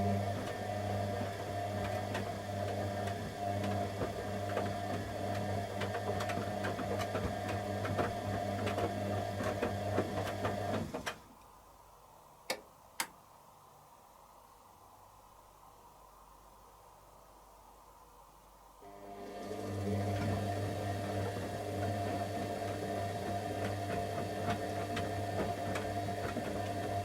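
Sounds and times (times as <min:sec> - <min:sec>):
washing machine motor humming: 0:00.0 - 0:11.1, 0:18.8 - 0:27.0
washing machine sharp clicks: 0:12.5 - 0:13.2.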